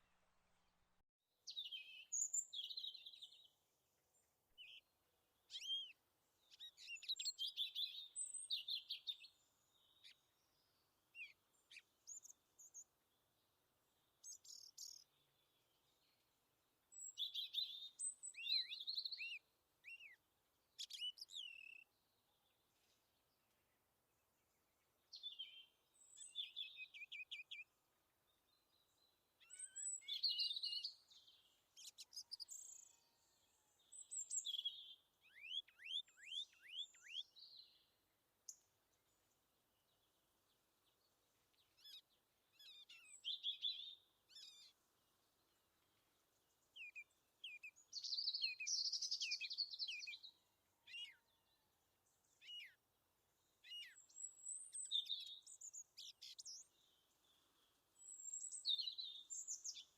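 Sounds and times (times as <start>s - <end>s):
birds chirping and trilling: 16.9s - 20.2s, 25.1s - 27.7s, 28.5s - 37.8s, 41.2s - 51.5s, 53.7s - 59.9s.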